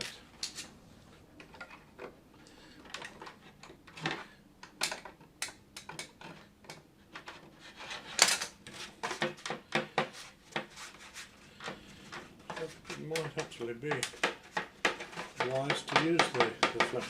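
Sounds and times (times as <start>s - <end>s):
plastic parts clicking and tapping: 2.8s - 7.5s, 11.6s - 17.0s.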